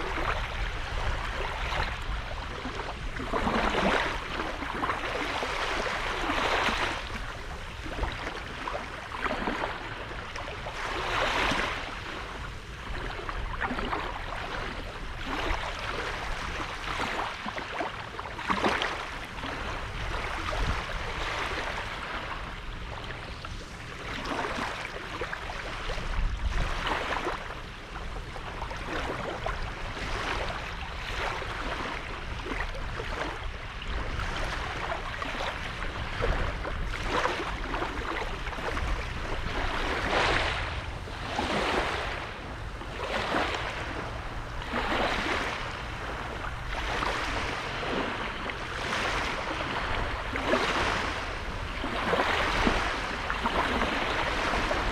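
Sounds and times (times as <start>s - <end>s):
sea waves washing onto sand: 0.0s - 54.9s
wind rumble: 31.9s - 54.9s.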